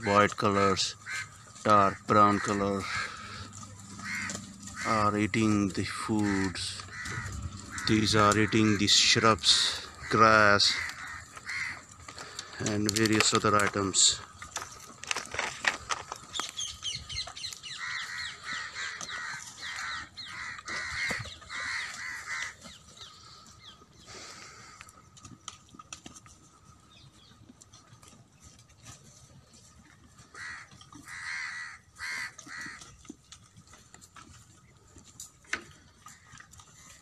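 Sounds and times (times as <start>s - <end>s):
bird harsh calls: 0.0s - 12.7s, 16.0s - 25.0s, 30.3s - 32.9s
goats browsing on twigs: 0.0s - 37.0s.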